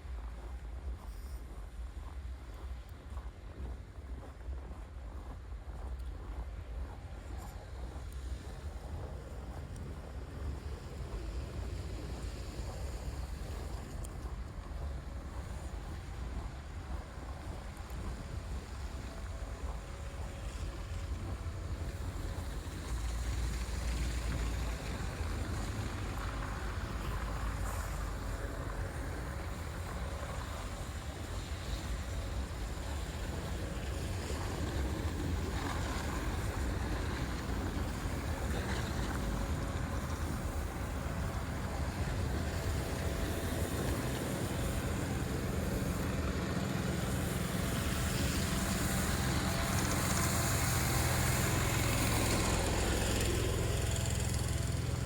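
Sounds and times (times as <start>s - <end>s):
city street noise: 0.0s - 55.0s
vehicle engine: 12.1s - 55.0s.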